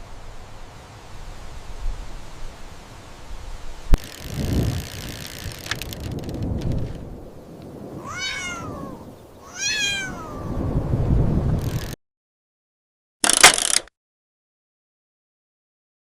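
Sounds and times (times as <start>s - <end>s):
cat meowing: 8.0s - 10.6s.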